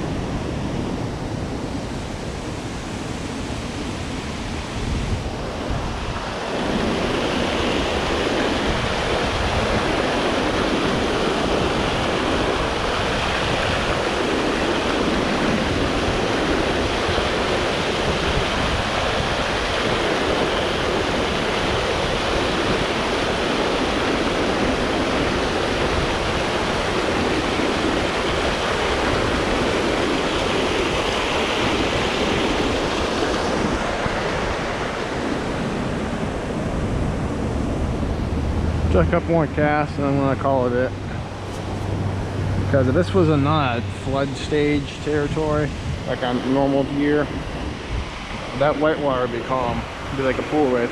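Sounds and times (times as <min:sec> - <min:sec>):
river rushing over rapids: 0:00.0 - 0:50.9.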